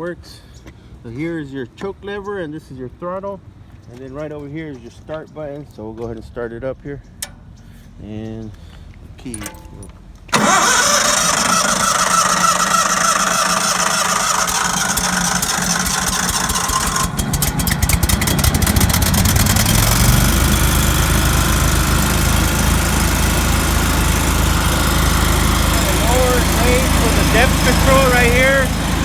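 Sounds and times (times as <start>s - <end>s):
deep engine rumble: 6.9s - 29.0s
gas engine running: 9.4s - 29.0s.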